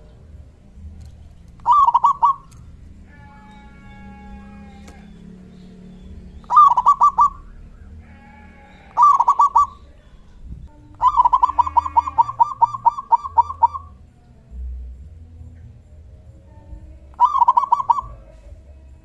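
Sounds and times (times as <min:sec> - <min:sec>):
dove cooing: 0:01.5 - 0:14.0, 0:17.1 - 0:18.6.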